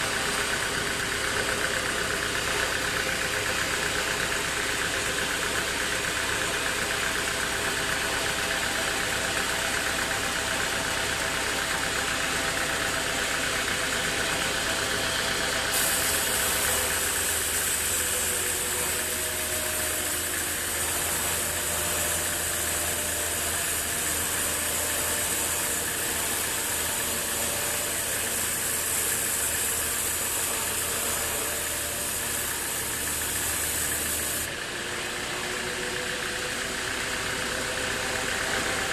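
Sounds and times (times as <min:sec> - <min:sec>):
sawmill machinery humming: 0:00.0 - 0:38.9
high-pitched hiss: 0:15.8 - 0:20.6.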